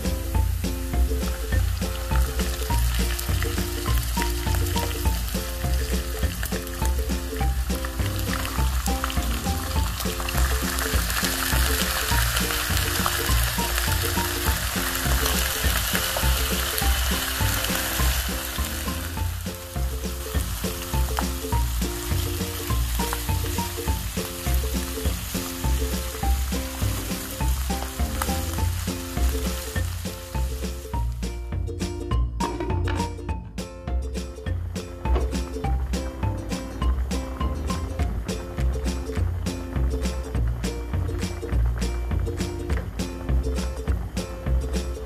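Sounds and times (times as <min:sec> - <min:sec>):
food sizzling in a pan: 0:00.0 - 0:31.3
background music with bass line: 0:00.0 - 0:45.0.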